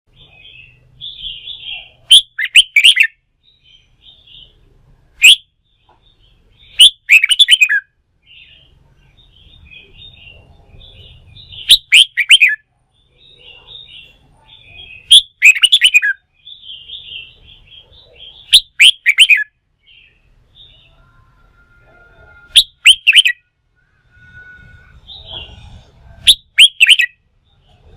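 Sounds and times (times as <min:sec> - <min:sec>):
bird whistled song phrases: 0:00.6 - 0:03.2, 0:05.2 - 0:05.5, 0:06.7 - 0:07.9, 0:11.4 - 0:12.6, 0:14.9 - 0:17.3, 0:18.4 - 0:19.5, 0:22.5 - 0:27.2
bird chattering calls: 0:09.7 - 0:12.6, 0:13.2 - 0:19.5, 0:22.5 - 0:23.4, 0:25.1 - 0:27.1.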